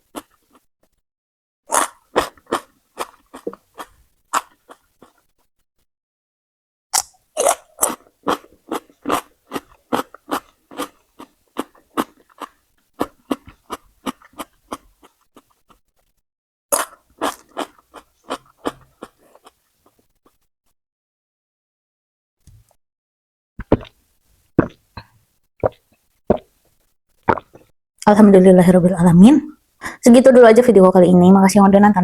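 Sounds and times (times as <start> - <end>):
crunchy chewing of vegetables: 0.0 - 0.7, 1.7 - 5.3, 7.0 - 16.1, 16.7 - 20.4, 23.6 - 27.7.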